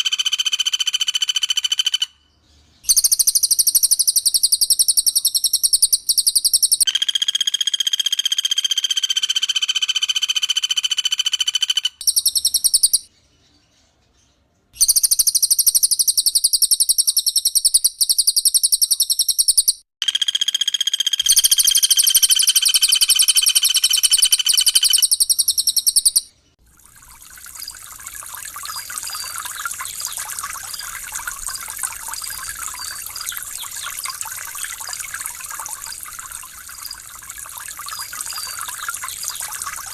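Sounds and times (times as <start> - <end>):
water trickling: 26.6 - 39.9
bird rattling trills: 27.0 - 39.9
whistled bird notes: 28.2 - 39.9.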